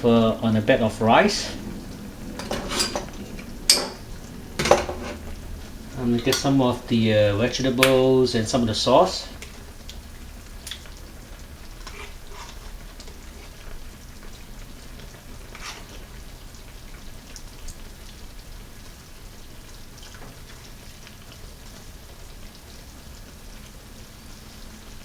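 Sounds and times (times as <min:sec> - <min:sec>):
low hum: 0:00.0 - 0:07.5
spoon clicking and scraping dish: 0:02.4 - 0:04.0, 0:04.6 - 0:05.2.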